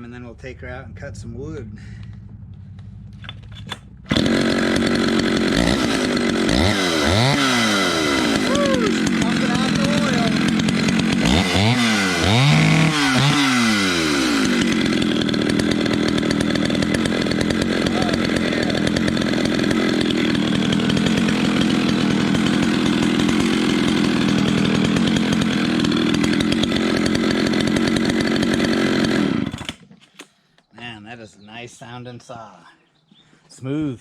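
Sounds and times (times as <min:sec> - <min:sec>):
chainsaw revving and running: 0:04.1 - 0:29.8.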